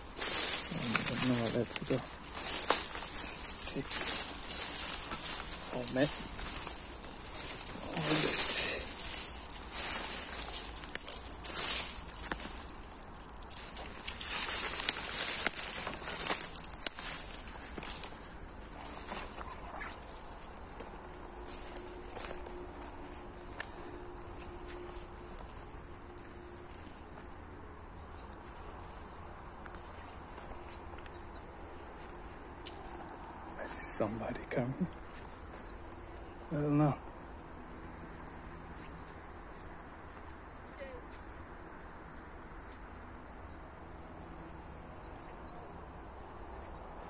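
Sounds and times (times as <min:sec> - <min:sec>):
high insect drone: 0:00.0 - 0:26.9
low outdoor background noise: 0:00.0 - 0:47.0.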